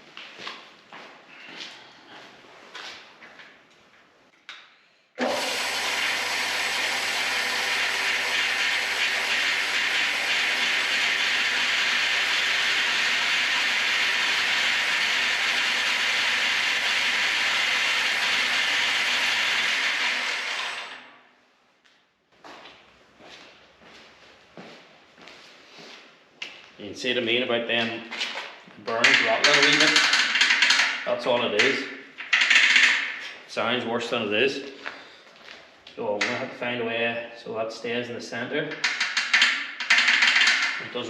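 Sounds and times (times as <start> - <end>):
bandsaw motor running: 5.2 - 21.2
washers rattling: 28.9 - 33.3.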